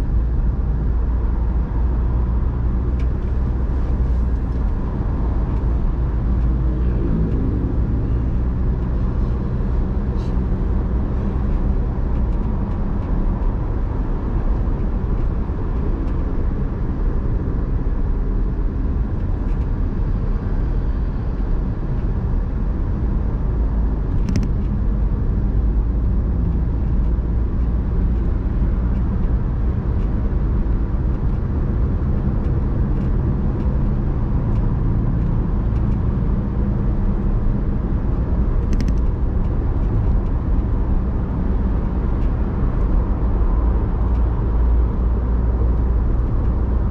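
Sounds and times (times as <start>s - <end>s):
car engine and road rumble: 0.0s - 46.9s
sharp clicks: 38.6s - 39.2s.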